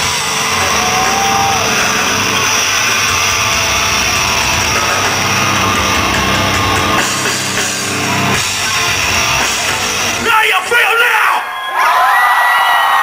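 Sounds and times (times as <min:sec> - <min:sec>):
bass guitar: 0:00.0 - 0:10.3
distorted electric guitar: 0:00.0 - 0:10.7
drum kit: 0:00.0 - 0:10.9.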